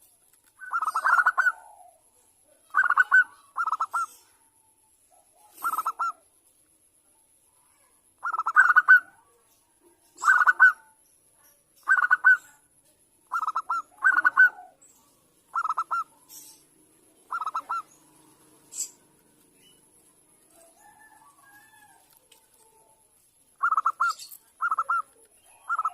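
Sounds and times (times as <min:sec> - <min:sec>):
dove cooing: 0:00.6 - 0:04.4, 0:05.2 - 0:06.2, 0:08.2 - 0:09.3, 0:10.2 - 0:11.0, 0:11.8 - 0:12.5, 0:13.3 - 0:23.0, 0:23.6 - 0:25.9.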